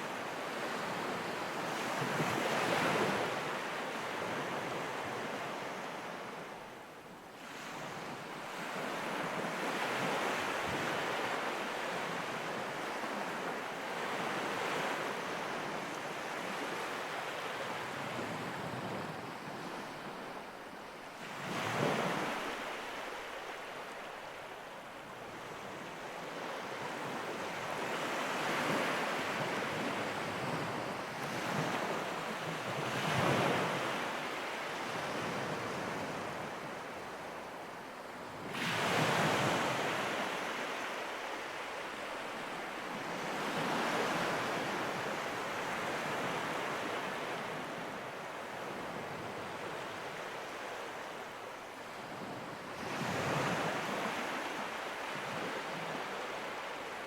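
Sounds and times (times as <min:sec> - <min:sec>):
ocean surf washing ashore: 0:08.6 - 0:57.0.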